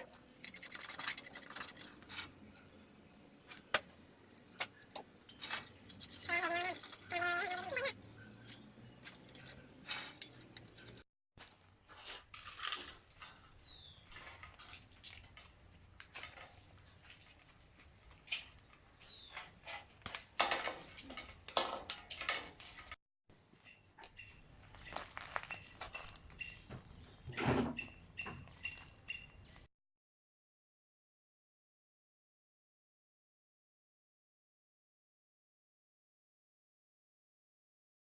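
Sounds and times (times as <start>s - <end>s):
high squeaks: 0.0s - 11.0s.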